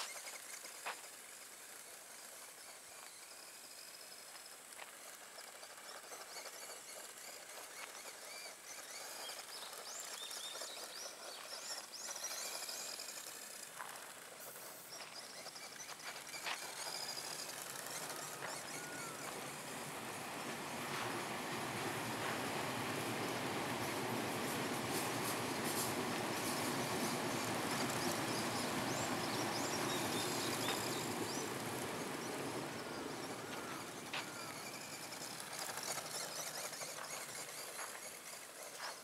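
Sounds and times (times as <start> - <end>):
small birds chirping: 0.0 - 39.0
steady hiss: 11.0 - 39.0.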